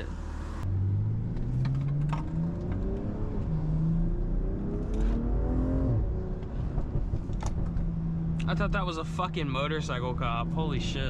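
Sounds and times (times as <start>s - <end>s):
engine accelerating through gears: 0.2s - 8.7s.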